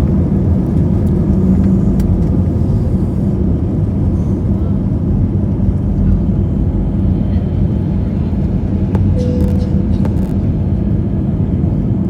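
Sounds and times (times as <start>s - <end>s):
aircraft engine drone in cabin: 0.0s - 12.0s
hum: 7.7s - 12.0s
brief faint tone: 9.0s - 10.6s.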